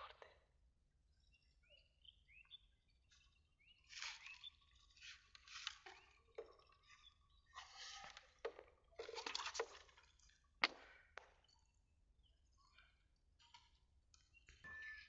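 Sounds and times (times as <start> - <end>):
faint bird chirps: 1.1 - 8.4, 11.4 - 15.0.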